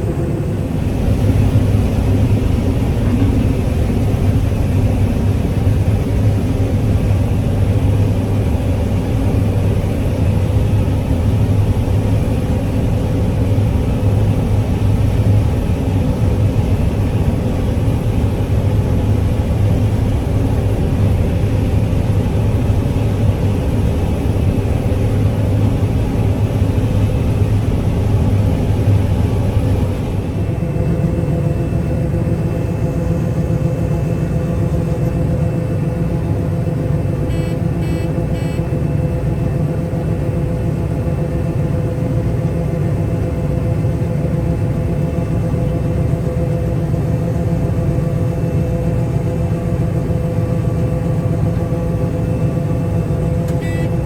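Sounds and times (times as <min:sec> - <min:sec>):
farm machinery engine rumbling: 0:00.0 - 0:10.1
faint high beeps: 0:53.6 - 0:54.0.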